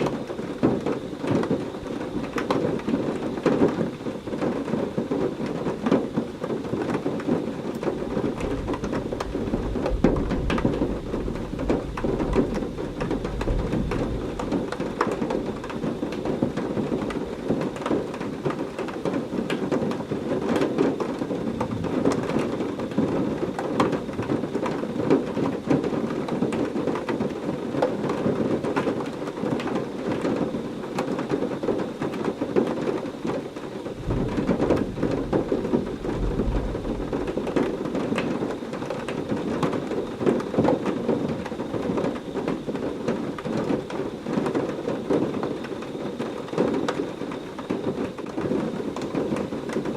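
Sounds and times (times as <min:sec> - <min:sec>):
low rumble of thunder: 0:00.0 - 0:26.6, 0:33.8 - 0:45.8
heavy rain falling: 0:00.0 - 0:49.9.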